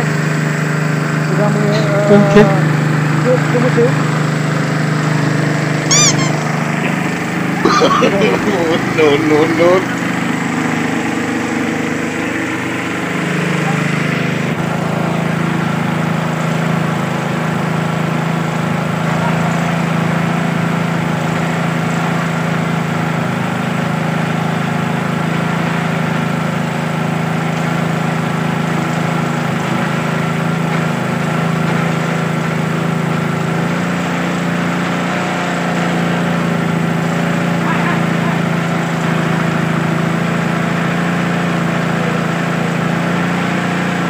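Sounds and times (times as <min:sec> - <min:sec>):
petrol water pump running: 0:00.0 - 0:44.0.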